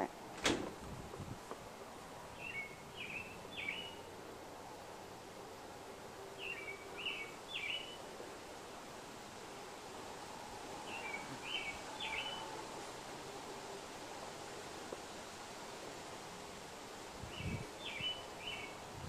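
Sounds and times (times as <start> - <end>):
songbird chirping: 2.2 - 4.2, 6.3 - 8.1, 10.8 - 12.7, 17.4 - 18.8.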